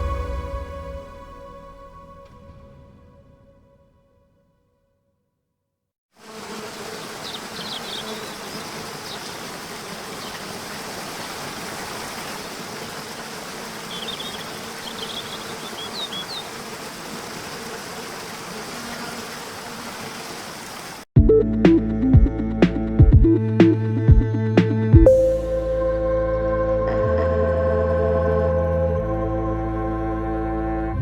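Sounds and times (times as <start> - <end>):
music: 0.0 - 4.8, 21.2 - 31.0
insect-like buzz: 6.2 - 21.1
rushing waterfall: 6.7 - 21.1
bird chirps: 7.2 - 9.5, 13.8 - 16.5.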